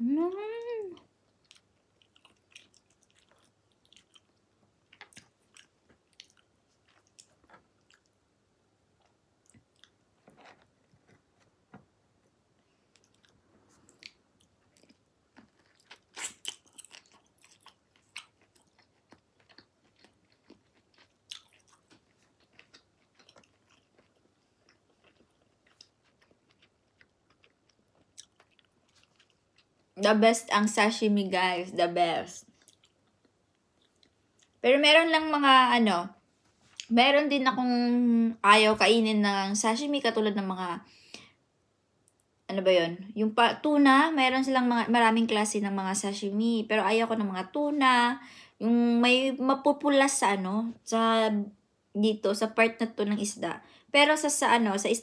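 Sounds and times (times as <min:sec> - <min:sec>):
close-up chewing and mouth clicks: 0:00.3 - 0:08.3, 0:08.9 - 0:30.0, 0:32.4 - 0:34.6.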